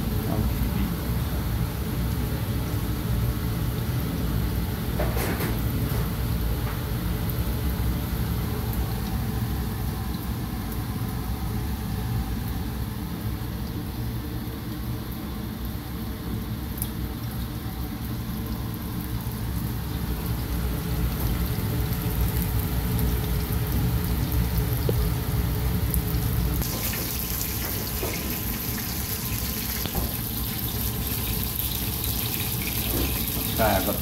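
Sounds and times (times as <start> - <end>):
fish frying in oil: 0.0 - 34.0.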